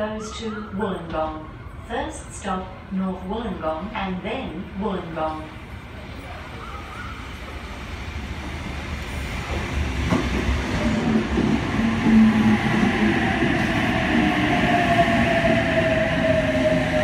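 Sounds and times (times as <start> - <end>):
train wheels rumbling on rails: 5.6 - 17.0.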